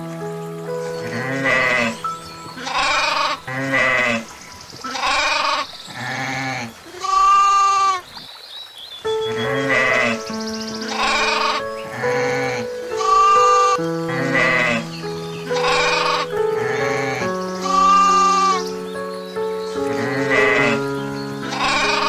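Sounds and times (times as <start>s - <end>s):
background music held notes: 0.0s - 4.8s, 9.1s - 22.0s
goat bleating: 2.6s - 4.2s, 21.5s - 22.0s.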